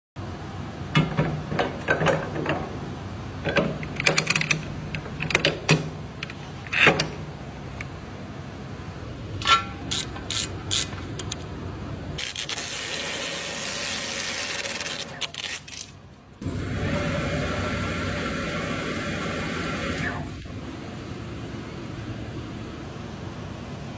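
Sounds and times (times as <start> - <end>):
tools clicking and clanking: 0.9 - 2.8, 3.4 - 7.9, 9.4 - 11.5.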